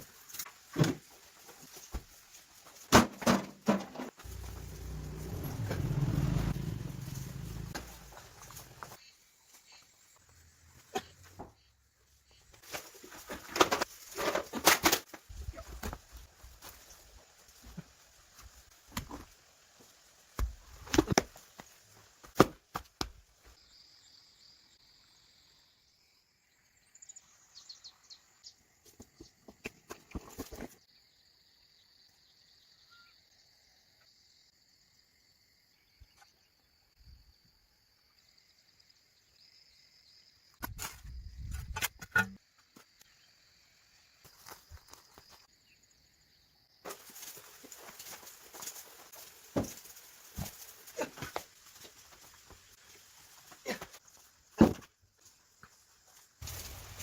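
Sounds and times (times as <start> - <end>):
rustles: 0.0 - 23.6, 46.8 - 57.0
insects buzzing: 4.2 - 13.2.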